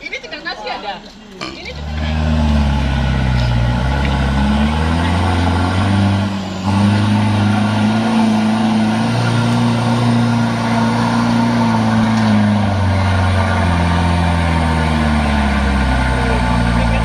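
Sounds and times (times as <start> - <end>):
truck engine under load: 1.2 - 17.0.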